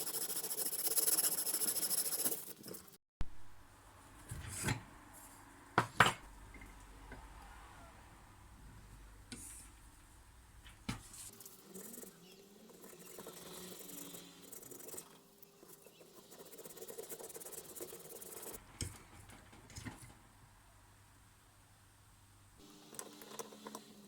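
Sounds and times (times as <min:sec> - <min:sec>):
sandpaper rubbing on metal: 0:00.0 - 0:02.8.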